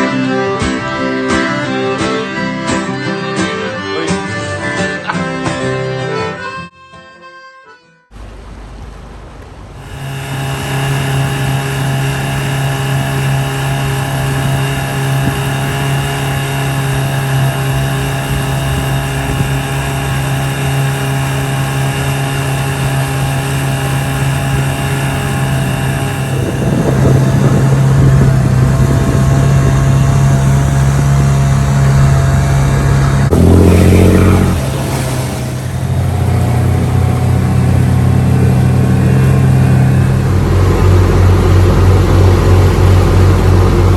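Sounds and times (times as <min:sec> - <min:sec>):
marine diesel engine running: 0:08.2 - 0:43.9.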